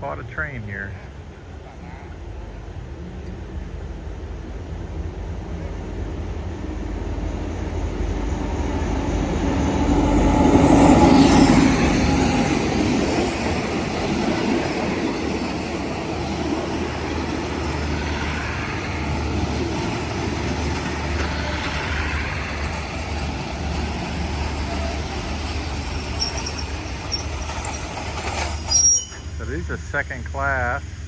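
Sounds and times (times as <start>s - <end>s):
train carriages rumbling: 0.0s - 31.0s.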